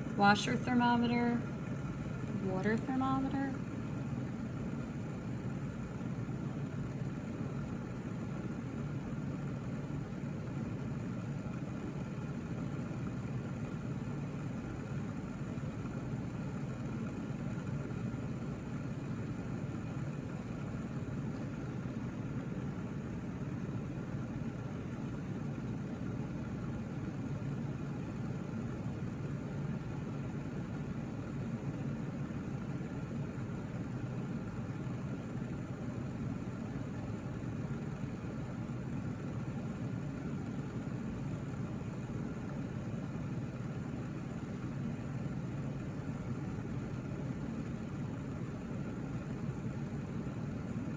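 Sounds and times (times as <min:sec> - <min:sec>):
faint whir: 0:00.0 - 0:50.9
low machine hum: 0:00.0 - 0:50.9.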